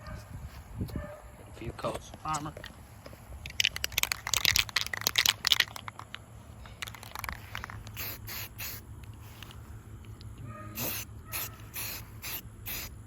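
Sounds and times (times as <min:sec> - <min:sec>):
aerosol can ball rattling: 0:03.4 - 0:08.8, 0:10.8 - 0:12.9
spray can hissing: 0:06.8 - 0:08.8, 0:10.8 - 0:13.0.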